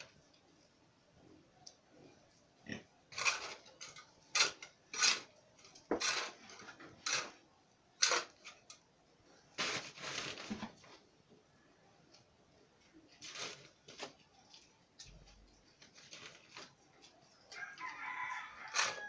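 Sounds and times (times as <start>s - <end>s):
shovel scraping cement and gravel: 3.1s - 5.3s, 5.9s - 7.4s, 8.0s - 8.5s, 18.7s - 19.0s.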